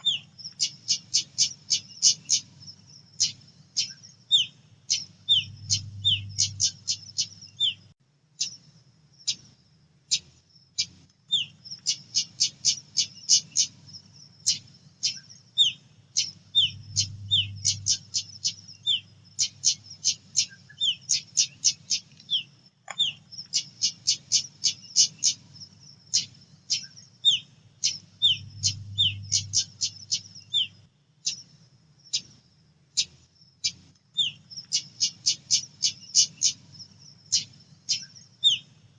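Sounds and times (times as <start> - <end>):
faint low hum: 0.0 - 38.9
bird whistled notes: 26.8 - 30.7.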